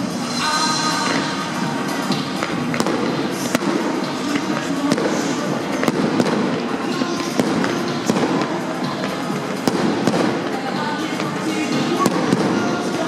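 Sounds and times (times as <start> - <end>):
fireworks crackling: 0.2 - 13.0
fireworks bangs: 2.4 - 8.6, 9.6 - 13.0.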